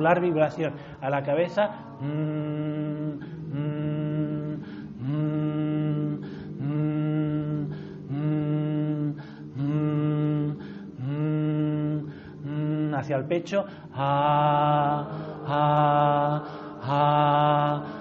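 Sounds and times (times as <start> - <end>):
man chanting held tone: 0.0 - 18.0.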